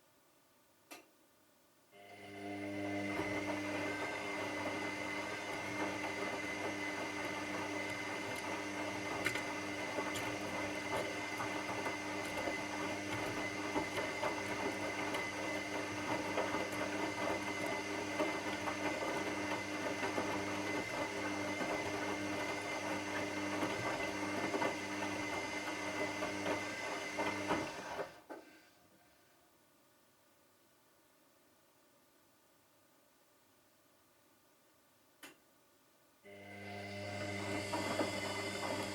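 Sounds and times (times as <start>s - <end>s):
washing machine motor hum: 2.0s - 28.3s, 36.3s - 38.9s.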